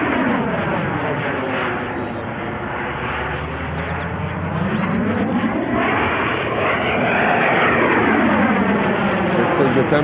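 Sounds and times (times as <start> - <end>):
model jet ducted fan whine: 0.0 - 10.0.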